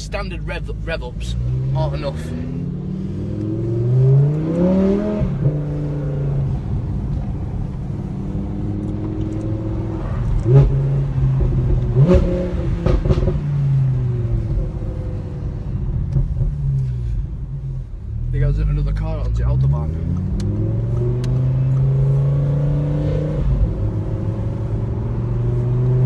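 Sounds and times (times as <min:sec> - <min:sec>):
sports car engine revving: 0:00.1 - 0:26.0
exhaust pops and bangs: 0:11.4 - 0:13.4.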